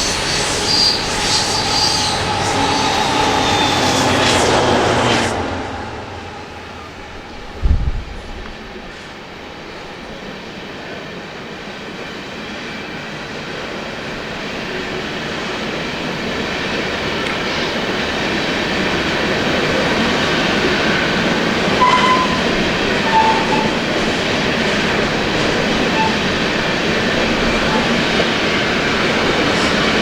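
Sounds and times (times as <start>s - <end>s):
train wheels rumbling on rail: 0.0s - 30.0s
wheel squeals: 21.0s - 30.0s.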